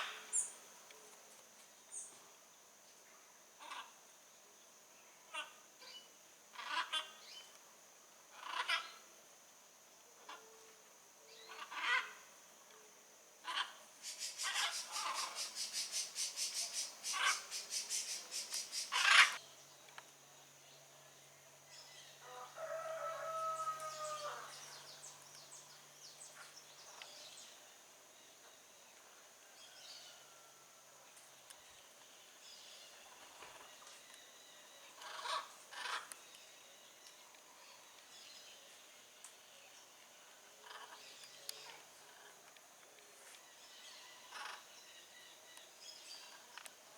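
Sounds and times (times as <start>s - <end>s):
bird pitched call: 13.5s - 19.4s
birds squawking: 13.5s - 19.4s.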